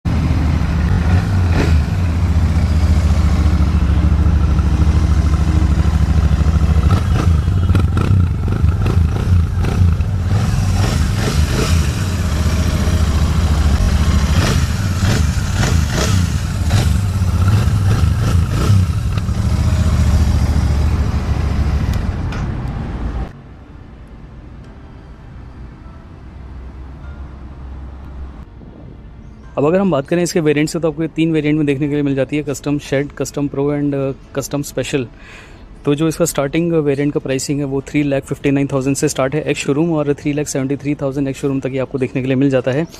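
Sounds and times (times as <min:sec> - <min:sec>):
motorcycle exhaust rumble: 0:00.1 - 0:22.3.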